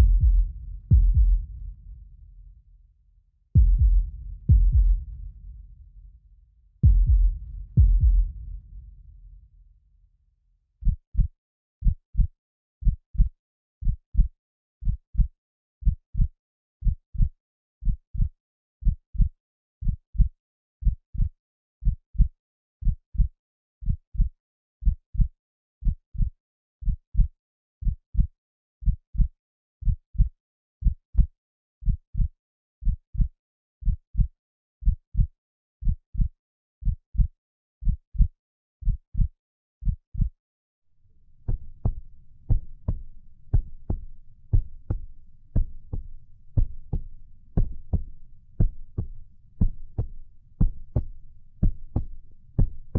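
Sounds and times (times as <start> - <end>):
heartbeat thumps: 0.0 - 2.3, 3.6 - 6.0, 6.8 - 9.2, 41.4 - 52.9.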